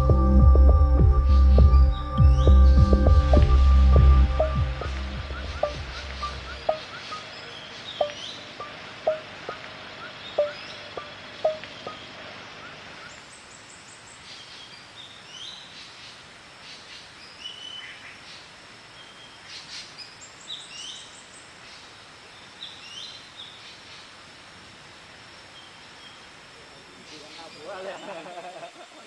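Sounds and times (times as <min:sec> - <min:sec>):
plucked musical notes: 0:00.0 - 0:12.2
forest background hiss: 0:00.0 - 0:29.0
birds chirping and trilling: 0:01.2 - 0:24.2.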